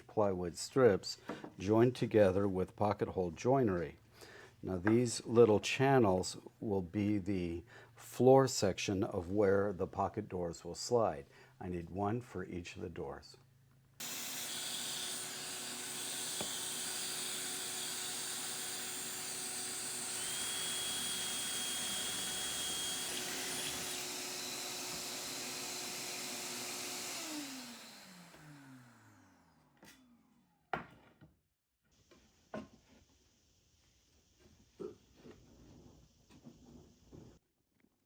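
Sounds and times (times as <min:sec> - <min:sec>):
electric power tool running: 0:14.0 - 0:30.2.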